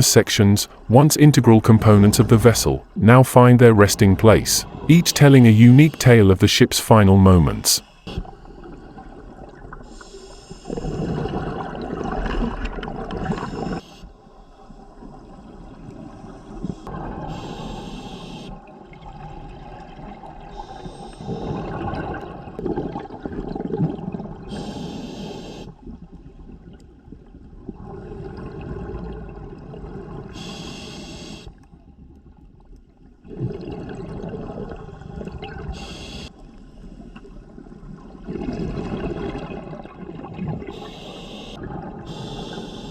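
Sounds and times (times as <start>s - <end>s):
exhaled bubbles gurgling: 10.6s - 13.8s, 18.9s - 25.0s, 25.8s - 30.5s, 33.2s - 36.0s, 37.6s - 40.9s, 41.6s - 42.9s
regulator inhalation hiss: 24.5s - 25.7s, 30.4s - 31.5s, 35.8s - 36.3s, 40.8s - 42.9s.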